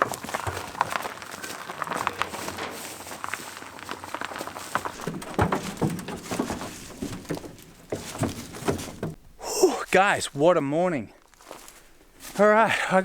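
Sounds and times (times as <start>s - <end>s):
footfalls: 0.0s - 10.4s
shuffling: 0.0s - 13.0s
knocks: 4.8s - 9.4s.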